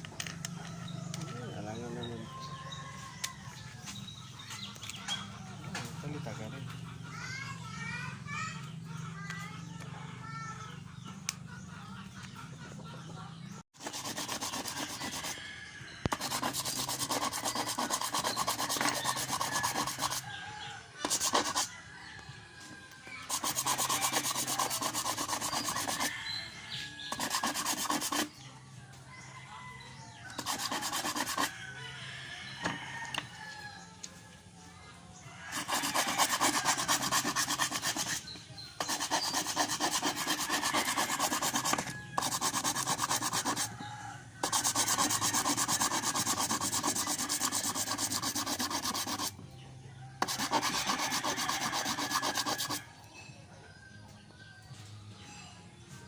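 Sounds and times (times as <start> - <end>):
hand sanding metal: 13.8 - 15.4, 16.1 - 20.3, 21.0 - 21.7, 23.2 - 26.4, 27.0 - 28.4, 30.4 - 31.6, 35.5 - 43.8, 44.4 - 49.3, 50.2 - 52.8.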